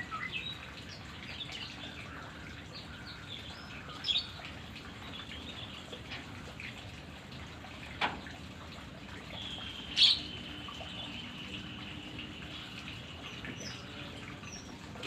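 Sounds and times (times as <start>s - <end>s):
bird chirps and calls: 9.4s - 10.4s.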